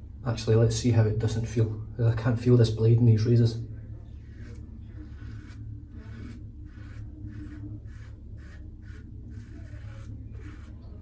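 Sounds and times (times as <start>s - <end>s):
razor scraping stubble: 4.1s - 11.0s.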